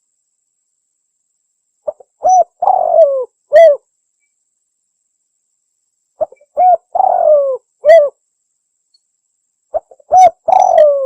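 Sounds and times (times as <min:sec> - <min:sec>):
dove cooing: 0:01.9 - 0:03.8, 0:06.2 - 0:08.2, 0:09.7 - 0:11.0.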